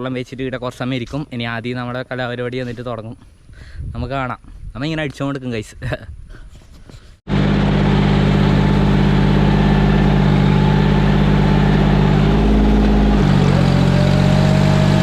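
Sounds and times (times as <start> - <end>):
tractor engine running: 7.3 - 15.0.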